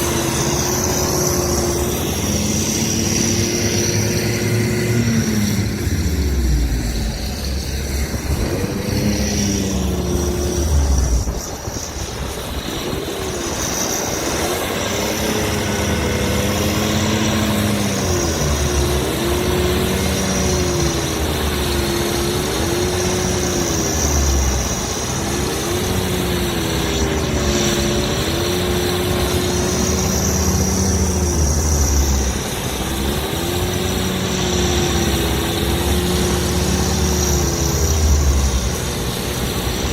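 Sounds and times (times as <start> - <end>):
tractor diesel engine working hard: 0.0 - 39.9.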